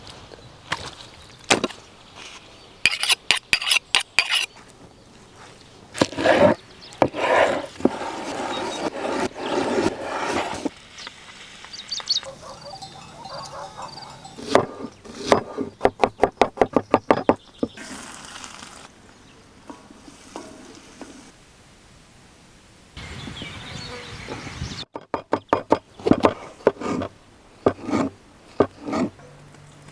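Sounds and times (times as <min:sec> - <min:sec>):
rustling and scraping: 0:02.2 - 0:11.6, 0:12.2 - 0:18.9, 0:25.0 - 0:29.2
utensils clinking: 0:12.3 - 0:15.5.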